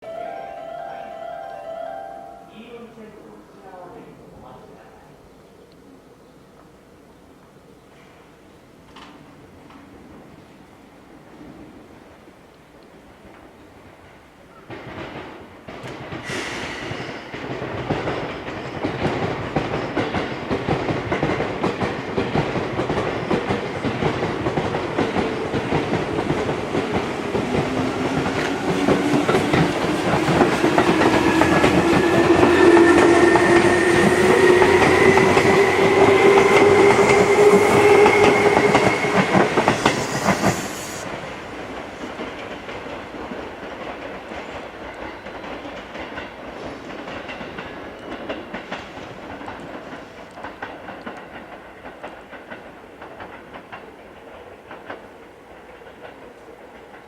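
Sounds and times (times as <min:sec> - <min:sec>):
wheels clattering on rails: 0:14.6 - 0:40.6, 0:41.6 - 0:57.0.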